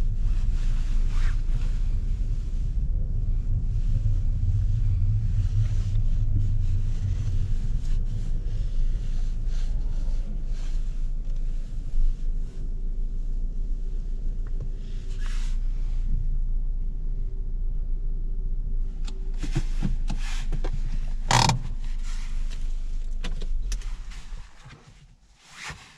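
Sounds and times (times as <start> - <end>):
car engine and road rumble: 0.0 - 25.9.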